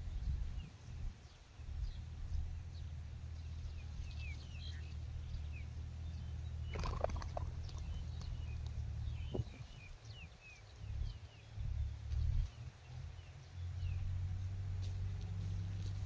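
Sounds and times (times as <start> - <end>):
small birds chirping: 0.0 - 16.0
wind rumbling on microphone: 0.0 - 16.0
brief knocks or rustles: 9.2 - 9.8.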